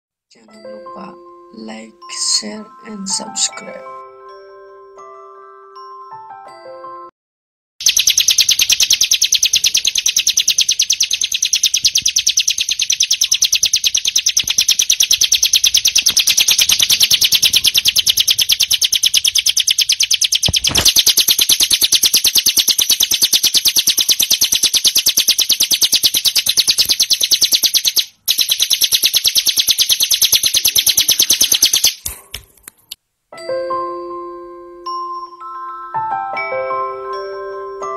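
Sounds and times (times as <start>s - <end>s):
bird rattling trill: 7.8s - 32.0s.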